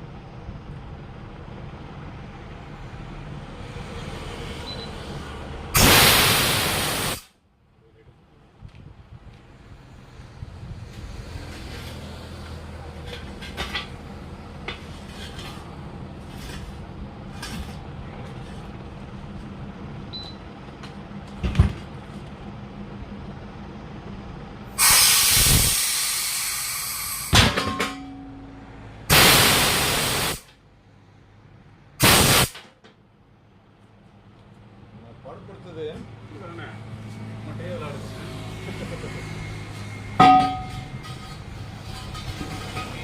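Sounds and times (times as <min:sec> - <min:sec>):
compressed air hissing: 0:05.8 - 0:07.3, 0:24.8 - 0:27.3, 0:29.1 - 0:30.4, 0:32.0 - 0:32.6.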